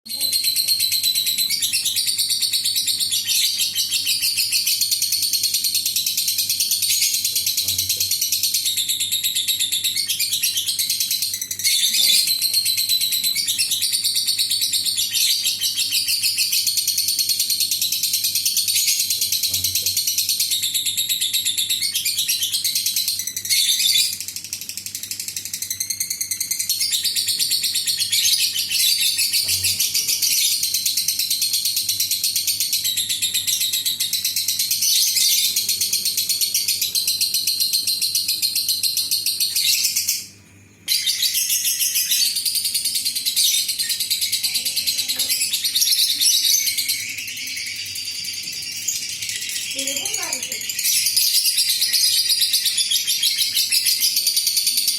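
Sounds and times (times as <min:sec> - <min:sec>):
lovebird chattering trill: 0:41.0 - 0:54.9.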